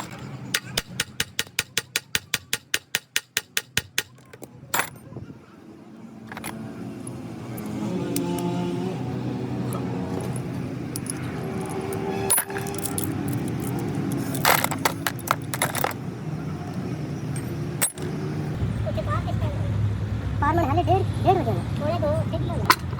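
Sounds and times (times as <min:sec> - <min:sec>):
low mechanical hum: 0:04.1 - 0:22.9
metal tools clinking: 0:04.2 - 0:05.1, 0:06.2 - 0:08.5, 0:09.6 - 0:16.0, 0:16.6 - 0:18.2.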